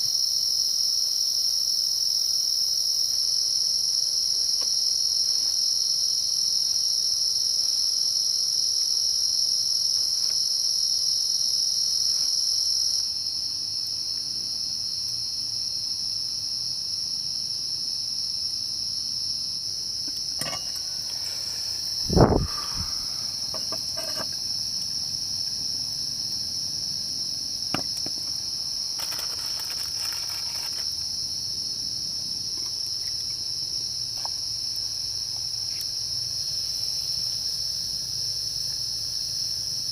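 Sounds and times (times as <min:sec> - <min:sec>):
insect chorus: 0:00.0 - 0:39.9
loud thump: 0:22.1 - 0:23.9.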